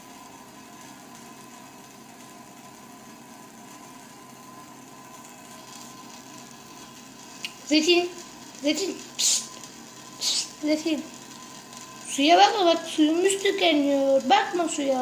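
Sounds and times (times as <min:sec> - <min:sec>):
tap water running: 0:05.2 - 0:15.0.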